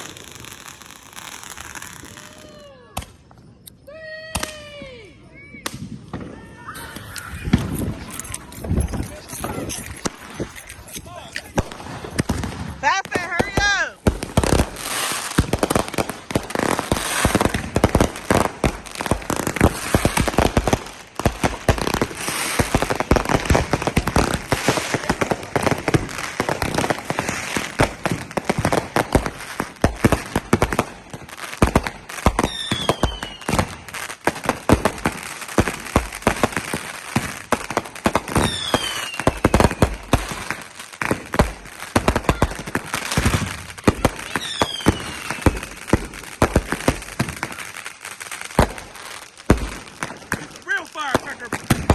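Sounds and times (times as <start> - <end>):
falling firework whistle: 0.0 - 5.0, 5.6 - 8.3, 32.3 - 33.9, 38.4 - 40.3, 42.1 - 45.8
fireworks crackling and banging: 0.0 - 51.9.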